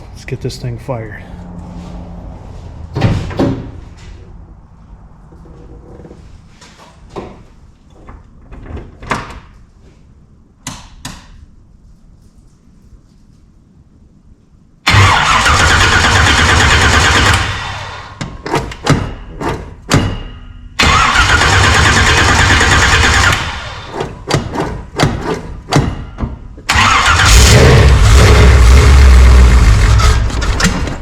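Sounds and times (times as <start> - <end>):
engine low rumble: 0.0 - 8.5, 26.7 - 31.0
engine popping and sputtering: 14.9 - 18.0, 20.8 - 24.0, 26.7 - 31.0
starter cranking engine: 14.9 - 18.2, 20.8 - 24.2, 26.7 - 31.0.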